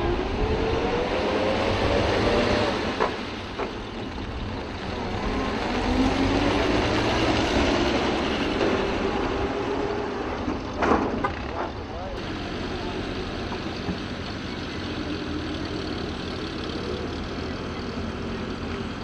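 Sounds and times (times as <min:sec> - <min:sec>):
truck engine running: 0:10.6 - 0:19.0.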